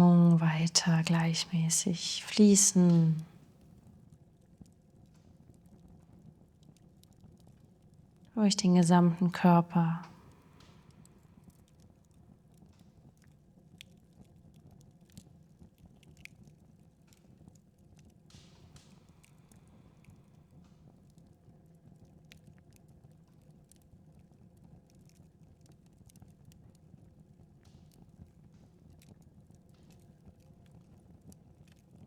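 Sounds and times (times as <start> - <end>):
soft hiss: 0.0 - 3.3.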